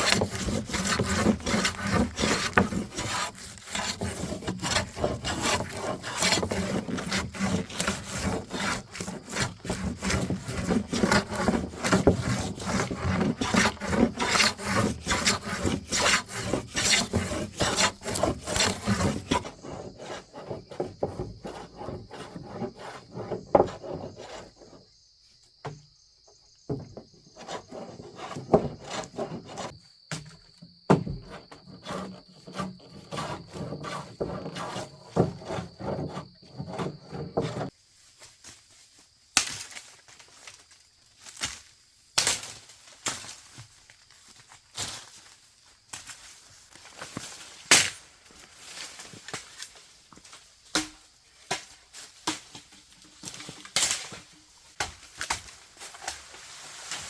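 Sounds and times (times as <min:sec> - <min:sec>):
hand tool rasping wood: 0:00.0 - 0:24.9, 0:26.7 - 0:30.3, 0:30.9 - 0:37.7
knocks and scrapes: 0:00.0 - 0:37.8, 0:51.5 - 0:57.0.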